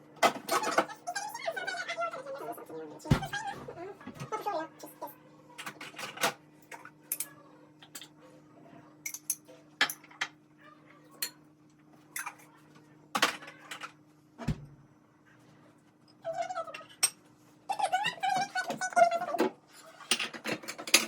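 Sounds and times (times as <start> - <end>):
dishes and utensils clinking: 5.6 - 8.1, 9.0 - 10.4, 12.1 - 12.5, 19.8 - 21.0.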